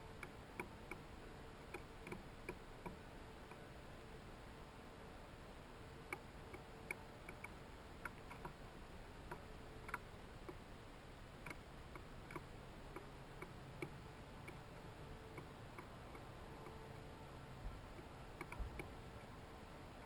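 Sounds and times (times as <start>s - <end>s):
faint hum: 0.0s - 20.0s
faint ticks and taps: 6.1s - 8.6s, 17.7s - 19.4s.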